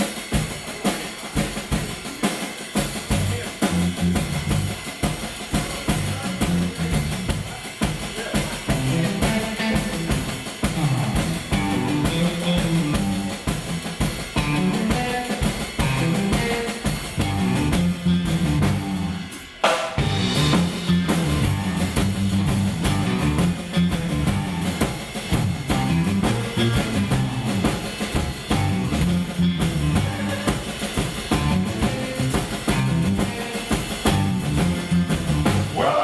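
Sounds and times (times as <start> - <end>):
drum kit steady beat: 0.0 - 36.0
bass line: 2.9 - 5.0, 5.8 - 7.6, 8.7 - 15.1, 15.8 - 19.4, 20.0 - 36.0
higher instrument notes: 8.6 - 36.0.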